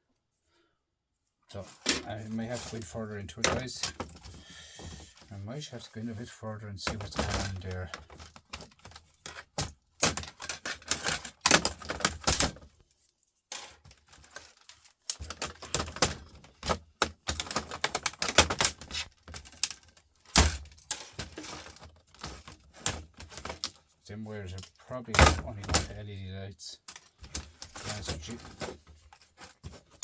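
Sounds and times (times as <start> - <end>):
plastic parts clicking and clacking: 6.8 - 12.8, 13.5 - 26.0, 26.8 - 30.0.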